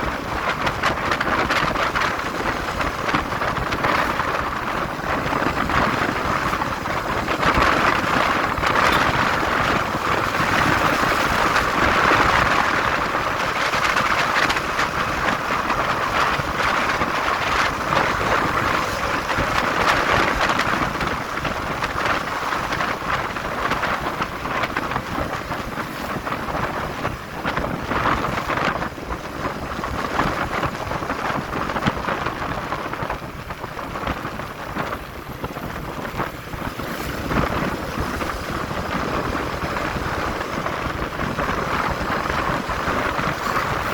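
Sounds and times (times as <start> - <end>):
motorcycle road and engine noise: 0.0 - 43.9
wind rushing over microphone: 0.0 - 43.9.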